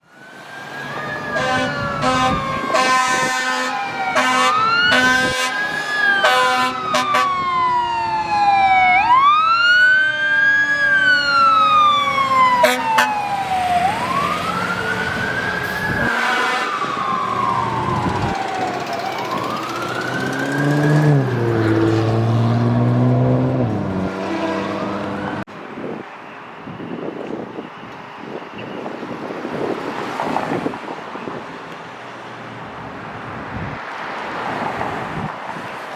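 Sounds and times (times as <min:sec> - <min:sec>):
fire truck siren wailing: 0:00.0 - 0:25.5
horn blasts: 0:01.3 - 0:05.6, 0:06.2 - 0:07.4, 0:12.6 - 0:13.2, 0:15.9 - 0:17.0.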